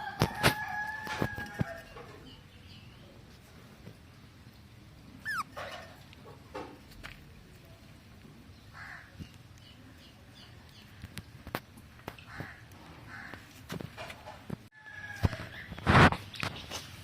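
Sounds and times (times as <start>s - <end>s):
bird calling: 5.2s - 6.0s.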